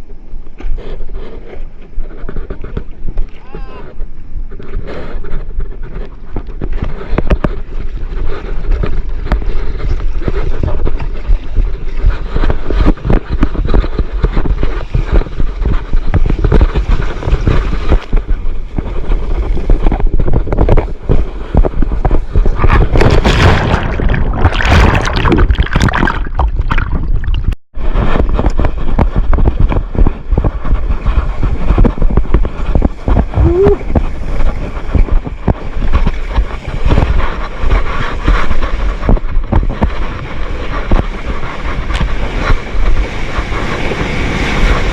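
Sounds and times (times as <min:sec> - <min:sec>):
wind buffeting microphone: 0:00.0 - 0:44.9
water rushing and splashing: 0:07.8 - 0:38.0.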